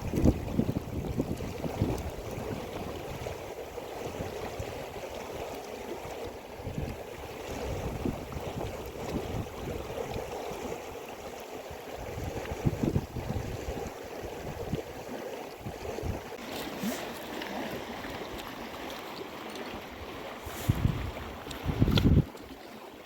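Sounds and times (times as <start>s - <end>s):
wind buffeting microphone: 0.0s - 5.0s, 6.6s - 10.4s, 11.9s - 16.4s, 20.0s - 22.5s
river water flowing: 0.0s - 23.0s.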